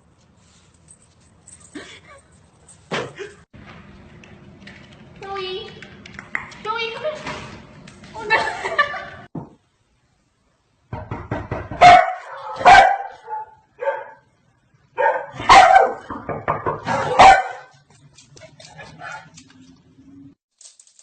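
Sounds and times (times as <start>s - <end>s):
dog barking: 11.8s - 14.3s, 15.0s - 16.1s, 16.8s - 17.8s.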